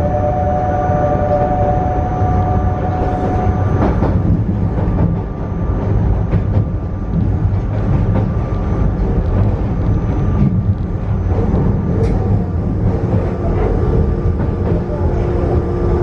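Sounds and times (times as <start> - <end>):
thin high whine: 0.0 - 3.9
train low rumble: 0.0 - 16.0.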